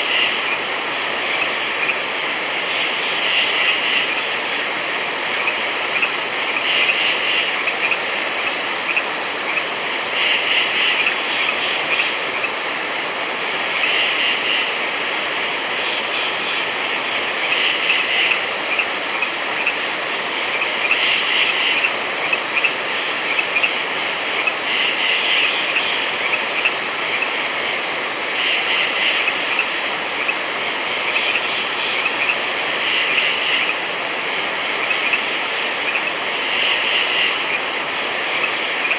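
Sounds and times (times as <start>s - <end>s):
frog chorus: 0.0s - 38.9s
high-pitched frog croaks: 2.6s - 4.3s, 5.3s - 12.6s, 13.7s - 14.8s, 15.8s - 27.4s, 28.3s - 33.8s, 34.7s - 37.7s.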